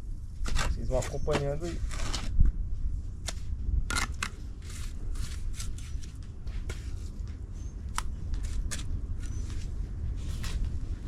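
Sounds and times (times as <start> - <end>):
trowel scraping and tapping bricks: 0.4 - 2.3.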